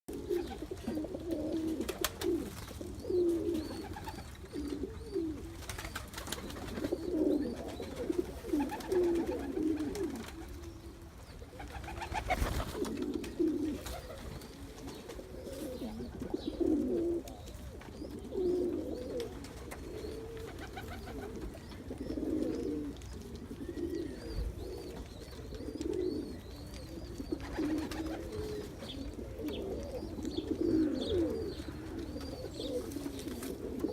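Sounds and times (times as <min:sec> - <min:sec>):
pigeon cooing: 0:00.1 - 0:33.9.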